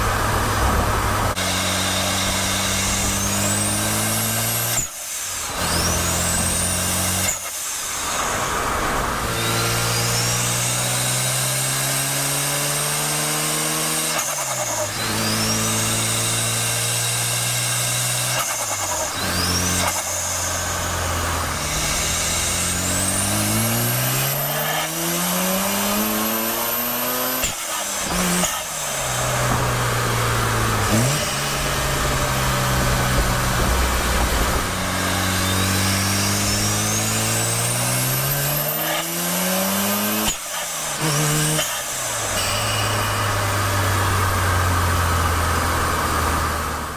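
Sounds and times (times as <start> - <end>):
rotary engine revving and idling: 0.0 - 46.9
turbo whistle: 42.4 - 43.7.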